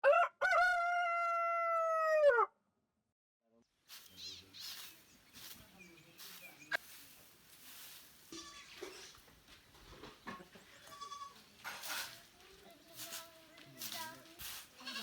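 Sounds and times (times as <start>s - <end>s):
rooster crowing: 0.0s - 2.5s
high bird chirps: 3.9s - 6.8s.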